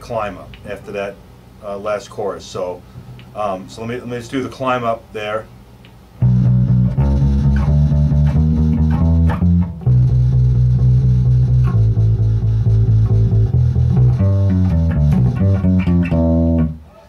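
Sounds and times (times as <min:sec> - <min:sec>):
electric bass guitar bass line: 0:06.2 - 0:16.9.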